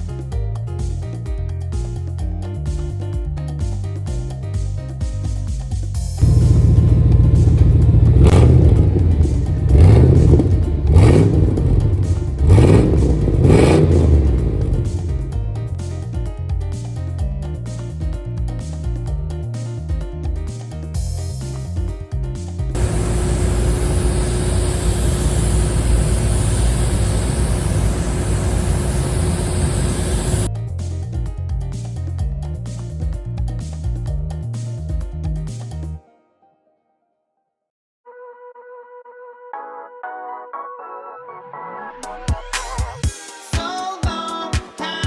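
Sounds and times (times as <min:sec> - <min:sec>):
car engine revving: 0:06.2 - 0:15.7, 0:22.8 - 0:30.5
faint steady hum: 0:22.8 - 0:30.5
background music: 0:38.6 - 0:45.0.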